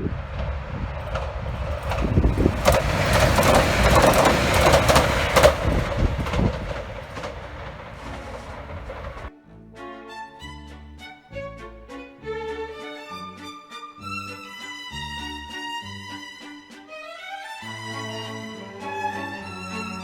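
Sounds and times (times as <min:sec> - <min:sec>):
sharp clicks of train: 0:00.0 - 0:09.3
train passing: 0:00.0 - 0:09.3, 0:17.7 - 0:20.0.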